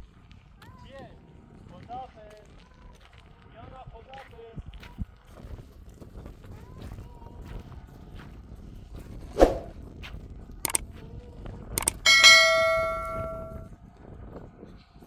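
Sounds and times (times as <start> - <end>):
bell-like metallic ring: 11.8 - 13.6
knocks and clicks: 11.8 - 13.6.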